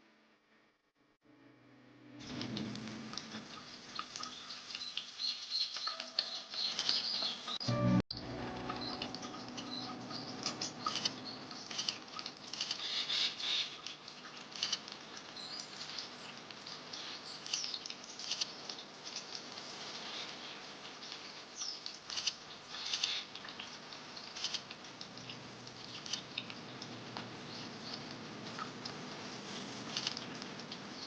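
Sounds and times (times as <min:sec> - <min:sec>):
birds chirping: 0:04.2 - 0:13.8.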